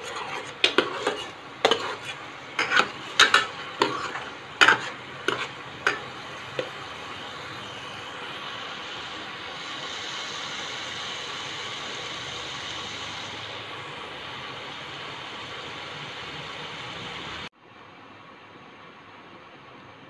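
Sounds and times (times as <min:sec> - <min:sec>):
gravy sizzling in pan: 0:00.0 - 0:17.5
steel spoon knocking on pan: 0:00.6 - 0:06.8.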